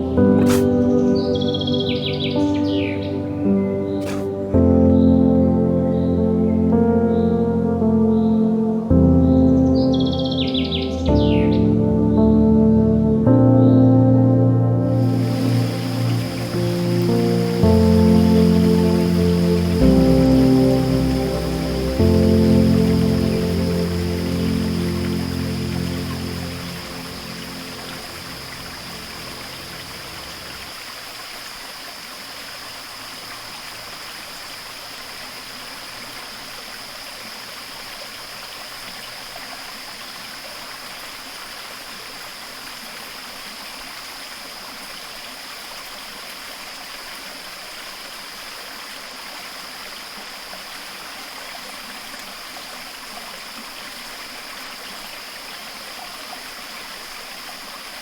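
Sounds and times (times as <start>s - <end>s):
stream water rushing: 0.0s - 4.6s, 14.9s - 58.0s
background music: 0.0s - 30.6s.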